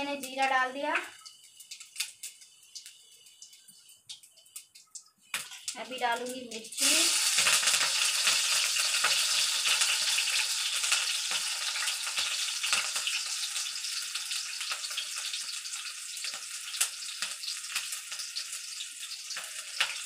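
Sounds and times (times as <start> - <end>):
chillies sizzling in hot oil: 0.0 - 20.0
oil popping: 0.3 - 15.9.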